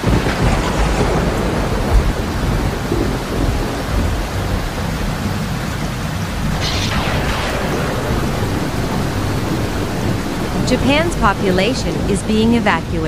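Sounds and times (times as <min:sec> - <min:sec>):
heavy rain: 0:00.0 - 0:13.0
deep rumble: 0:06.3 - 0:12.9.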